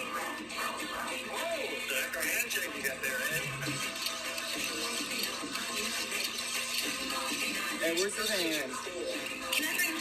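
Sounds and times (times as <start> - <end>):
faint background music: 0.0 - 10.0.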